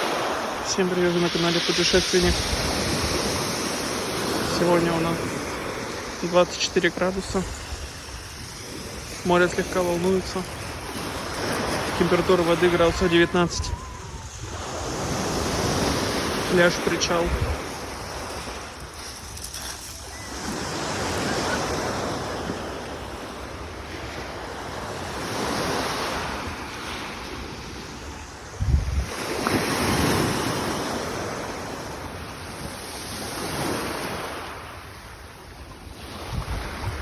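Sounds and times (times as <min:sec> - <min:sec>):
sea waves breaking on beach: 0:00.0 - 0:37.0
wind buffeting microphone: 0:09.9 - 0:16.5, 0:17.2 - 0:21.6, 0:27.8 - 0:30.1, 0:36.2 - 0:37.0.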